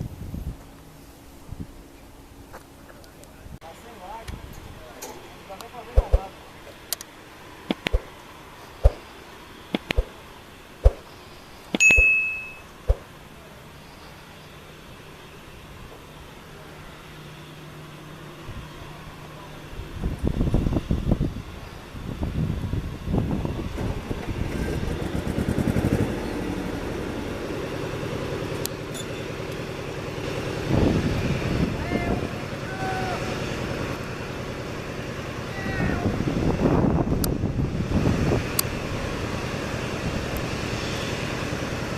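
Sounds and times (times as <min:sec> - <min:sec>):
sharp knocks with low thud: 0:10.8 - 0:11.0
electronic chime ding: 0:11.8 - 0:12.7
jet engine rumble: 0:18.4 - 0:41.9.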